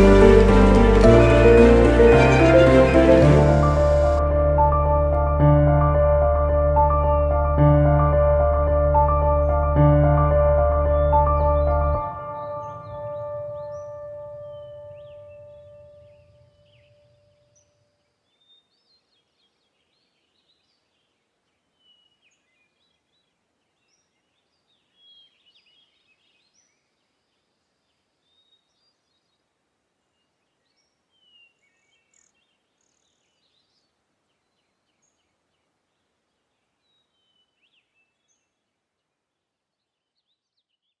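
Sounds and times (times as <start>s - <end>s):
faint birdsong: 10.8s - 41.0s.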